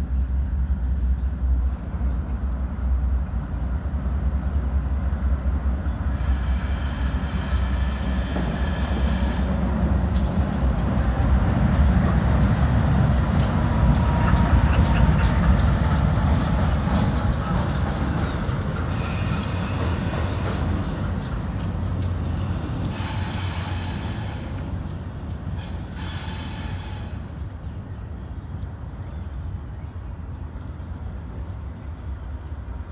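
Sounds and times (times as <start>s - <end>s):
diesel locomotive rumble: 0.0s - 32.9s
wheels clicking over rail joints: 9.6s - 23.5s.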